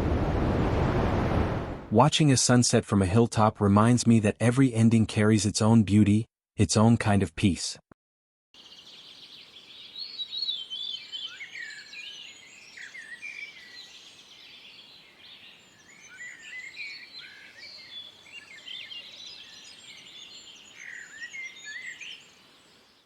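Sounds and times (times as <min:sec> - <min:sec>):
faint outdoor hiss: 0:08.6 - 0:23.0
small birds chirping: 0:08.6 - 0:23.0.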